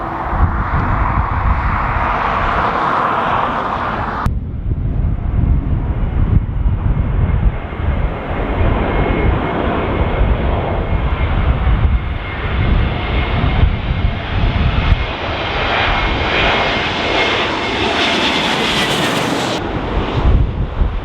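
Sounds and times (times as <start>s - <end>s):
steady rushing sound: 0.0s - 11.6s
jet engines on approach: 0.0s - 21.0s
wind rumble on microphone: 0.0s - 21.0s.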